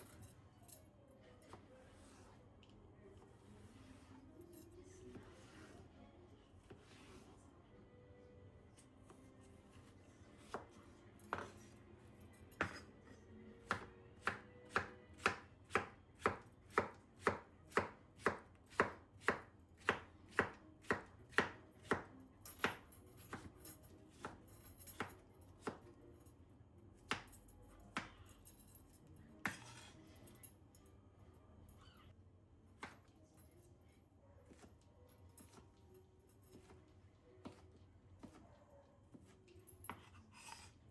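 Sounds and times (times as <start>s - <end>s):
knife chopping on cutting board: 12.6s - 12.9s, 13.6s - 23.5s, 29.4s - 29.9s.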